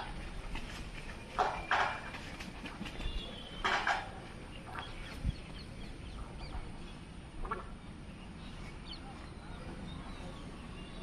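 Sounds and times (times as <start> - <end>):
harsh clucking bird calls: 0.0 - 8.0.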